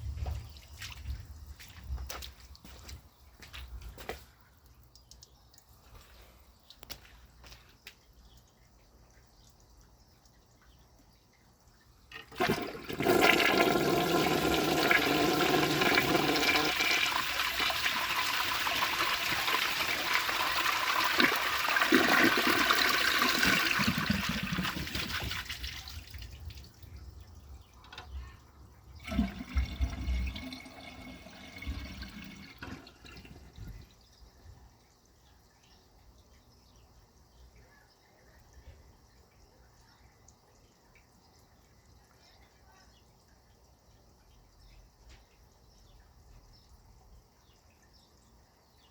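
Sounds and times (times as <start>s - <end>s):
toilet flushing: 12.1s - 26.6s, 29.0s - 33.9s
toilet refilling gurgling: 12.1s - 26.8s, 28.9s - 33.9s.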